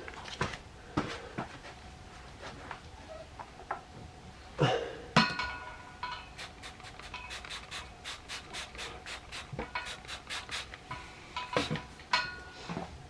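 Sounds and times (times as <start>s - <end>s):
spray bottle squirting: 6.3s - 10.8s.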